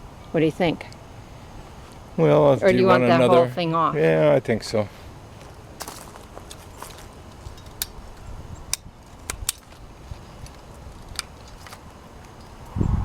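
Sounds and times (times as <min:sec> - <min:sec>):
wind rumble on microphone: 0:12.5 - 0:13.0.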